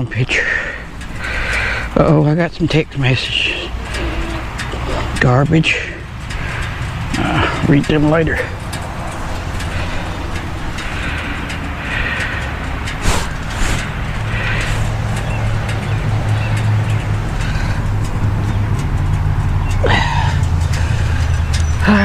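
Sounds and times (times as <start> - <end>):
steady rushing hiss: 0.3 - 21.8
motorcycle engine running: 0.8 - 22.0.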